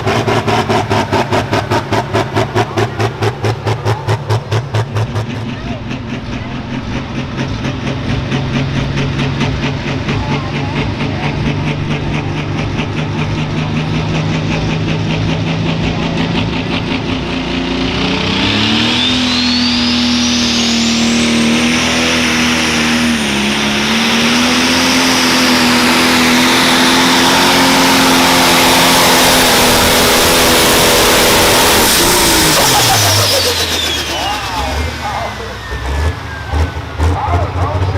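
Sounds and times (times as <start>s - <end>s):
diesel tractor engine: 0.0s - 37.9s
turbocharger whistle: 17.8s - 37.9s.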